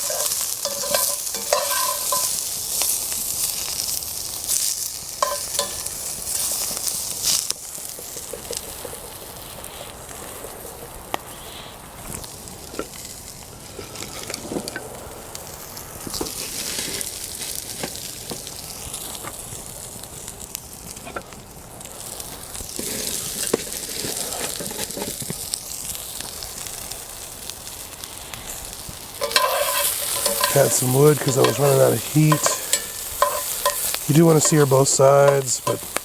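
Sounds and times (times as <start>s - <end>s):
crackles and knocks: 0.0s - 2.4s, 5.2s - 6.5s, 29.2s - 36.0s
vegetables sizzling in oil: 0.0s - 36.0s.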